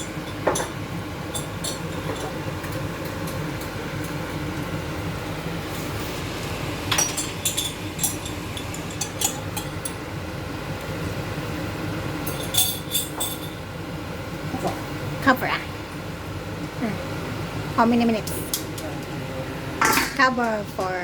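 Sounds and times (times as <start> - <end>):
metal utensil clinking on a pot: 6.9 - 10.0.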